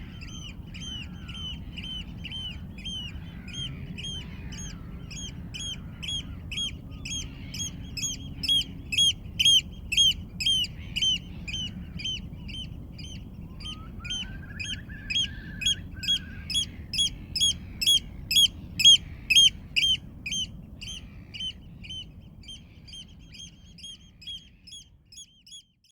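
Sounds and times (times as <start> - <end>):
low steady rumble: 0.0 - 25.8
bird repeating short call: 13.6 - 21.0.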